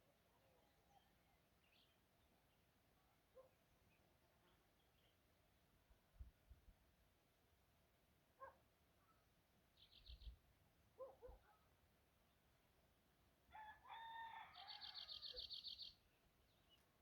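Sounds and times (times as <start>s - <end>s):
bird chirping: 9.8s - 10.4s, 14.7s - 16.9s
distant rooster crowing: 13.5s - 15.5s.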